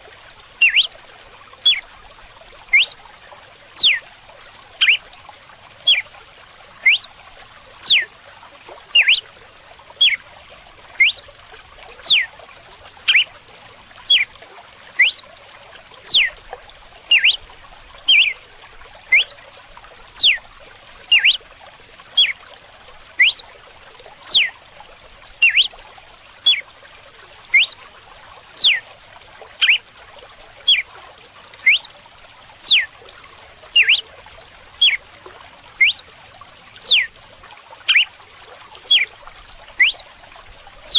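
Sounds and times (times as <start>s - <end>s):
running water trickling: 0.0s - 40.9s
bird whistling sharp notes: 0.6s - 0.9s, 2.7s - 3.0s, 3.8s - 4.0s, 6.8s - 7.1s, 7.8s - 8.1s, 9.0s - 9.2s, 10.0s - 10.2s, 11.0s - 11.2s, 12.0s - 12.3s, 13.1s - 13.3s, 15.0s - 15.2s, 16.1s - 16.3s, 17.1s - 17.4s, 18.1s - 18.3s, 19.1s - 19.4s, 20.2s - 20.4s, 21.1s - 21.4s, 23.2s - 23.4s, 24.3s - 24.5s, 25.4s - 25.7s, 27.5s - 27.8s, 28.6s - 28.8s, 31.6s - 31.9s, 32.6s - 32.9s, 33.8s - 34.0s, 35.8s - 36.0s, 36.8s - 37.1s, 39.8s - 40.0s.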